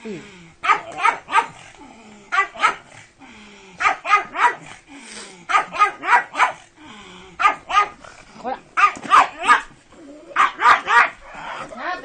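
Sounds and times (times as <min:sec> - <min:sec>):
dog barking: 0:00.6 - 0:01.6, 0:02.3 - 0:02.9, 0:03.8 - 0:04.7, 0:05.5 - 0:06.6, 0:07.4 - 0:08.0, 0:08.8 - 0:09.7, 0:10.4 - 0:11.3.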